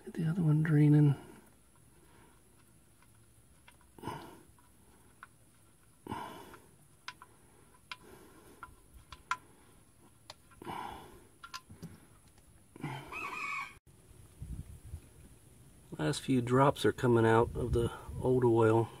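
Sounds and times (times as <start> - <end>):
soft rustling or breathing: 1.2 - 3.1, 3.8 - 13.6.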